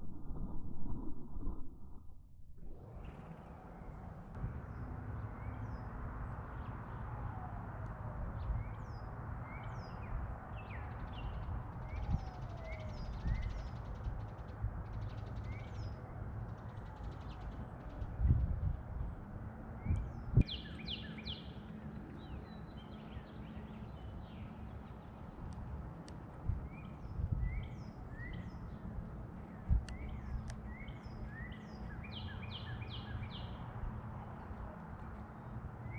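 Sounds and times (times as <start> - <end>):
low background rumble: 0.0 - 3.3
songbirds chirping: 8.4 - 35.9.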